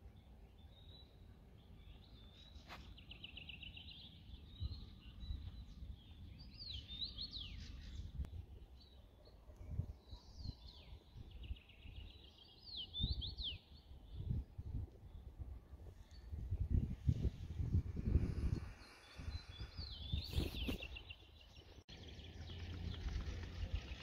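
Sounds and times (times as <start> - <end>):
songbird trilling and whistling: 18.6 - 21.2.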